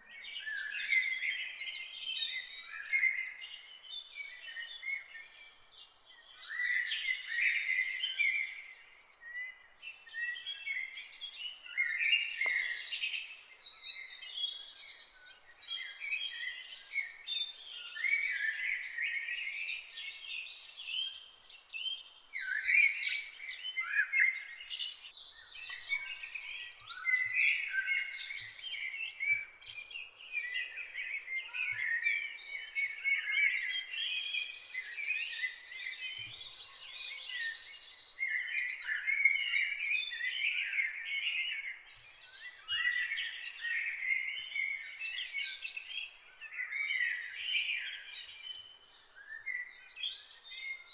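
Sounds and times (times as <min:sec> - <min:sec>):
songbirds chorus: 0:00.0 - 0:50.9.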